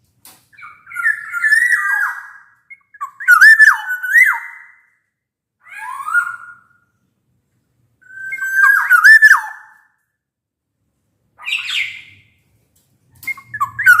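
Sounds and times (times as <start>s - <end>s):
bird fluty whistled song: 0.6s - 5.0s, 5.7s - 6.9s, 8.0s - 10.0s, 11.4s - 12.4s, 13.2s - 14.0s
harsh scratchy bird call: 13.2s - 14.0s.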